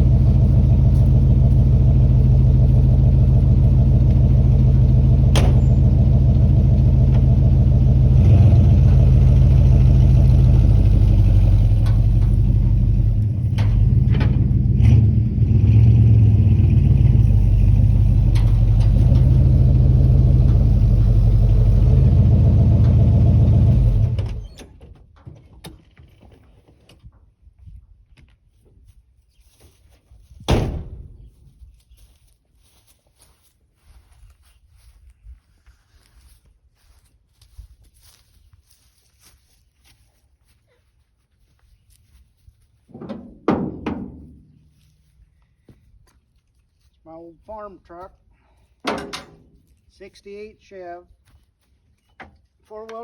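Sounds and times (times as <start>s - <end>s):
pickup truck engine running: 0.0s - 24.4s.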